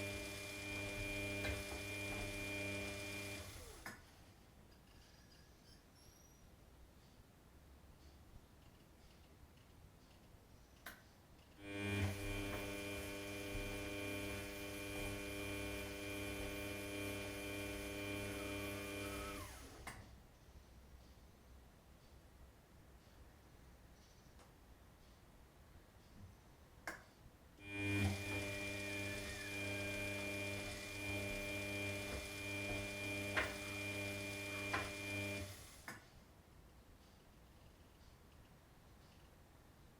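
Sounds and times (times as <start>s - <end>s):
washing machine motor humming: 0.0s - 3.8s, 11.6s - 19.8s, 27.6s - 35.7s.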